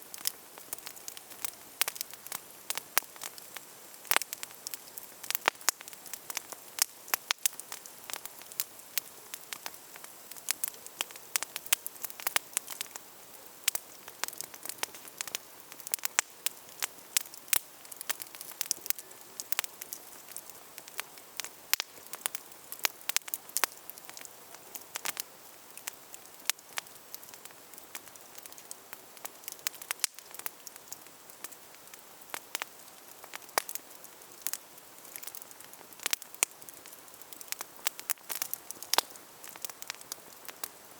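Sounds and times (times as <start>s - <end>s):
campfire crackling and popping: 0.0s - 40.9s
fire soft hiss: 0.0s - 40.9s.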